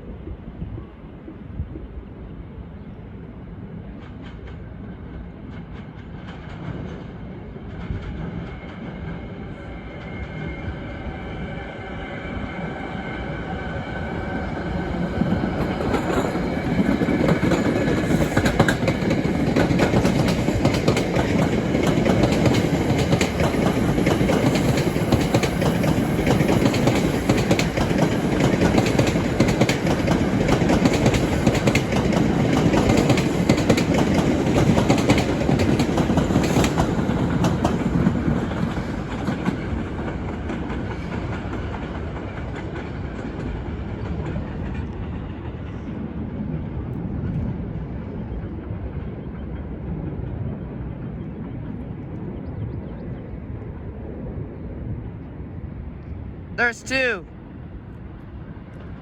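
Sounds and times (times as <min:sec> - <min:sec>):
train wheels clicking over rail joints: 0:15.4 - 0:45.8.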